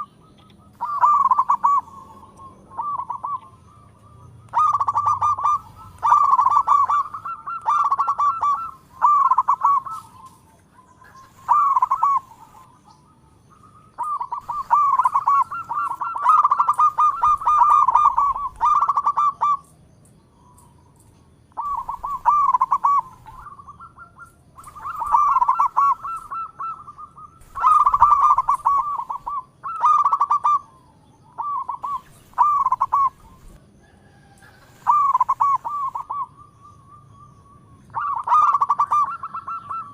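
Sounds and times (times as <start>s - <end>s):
dove cooing: 0.0s - 19.7s, 21.6s - 39.9s.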